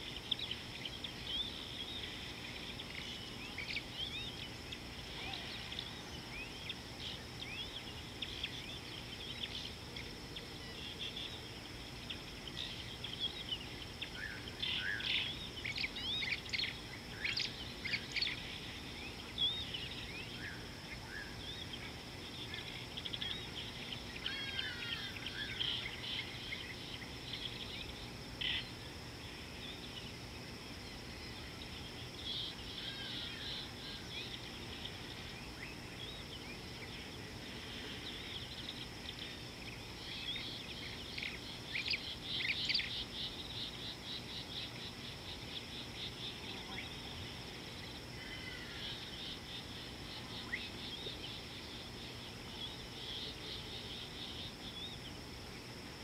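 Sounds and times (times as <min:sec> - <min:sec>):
steady high hum: 0:00.0 - 0:56.0.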